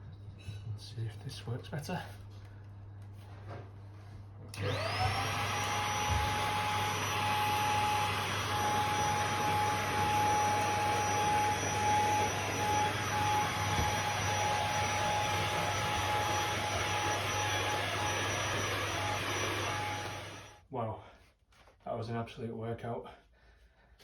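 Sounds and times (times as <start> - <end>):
vacuum cleaner motor whining: 4.5 - 20.6.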